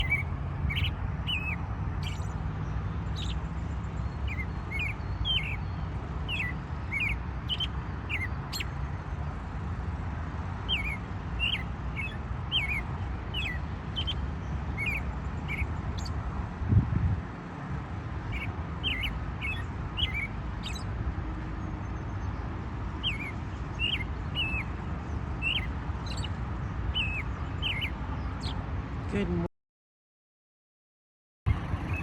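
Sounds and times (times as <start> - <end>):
bird chirping: 0.0 - 8.8, 10.6 - 16.2, 18.3 - 20.9, 23.0 - 24.8, 25.4 - 29.3, 31.5 - 32.0
steady low rumble: 31.5 - 32.0.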